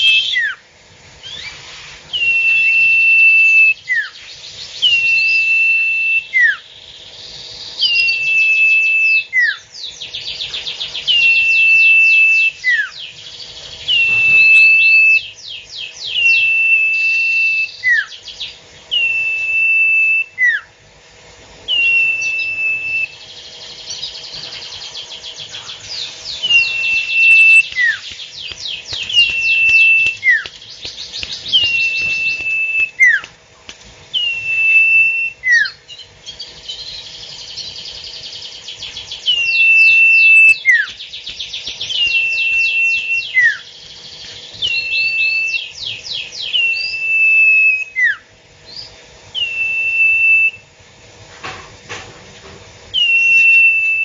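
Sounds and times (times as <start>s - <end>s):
songbird singing: 0.0s - 20.8s, 21.7s - 33.4s, 34.1s - 50.7s, 52.9s - 54.0s
rapid chattering trills: 25.4s - 32.6s.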